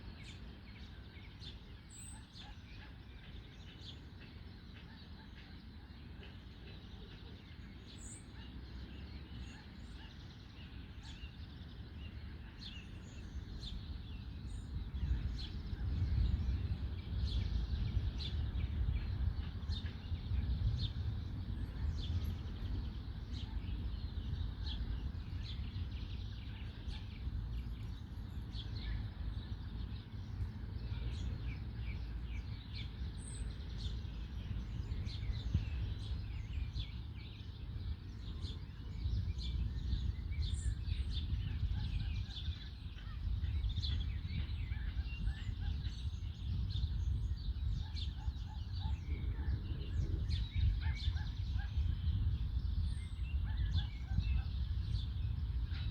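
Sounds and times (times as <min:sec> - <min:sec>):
songbirds chirping: 0:00.0 - 0:55.9
steady low rumble: 0:12.3 - 0:55.9.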